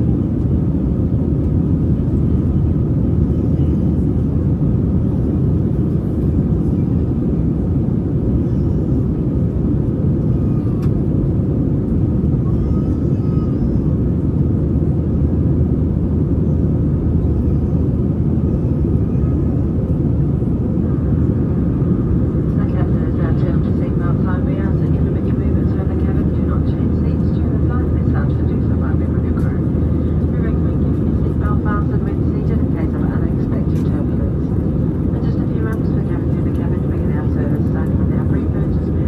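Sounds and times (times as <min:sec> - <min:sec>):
airplane cabin engine rumble: 0:00.0 - 0:39.0.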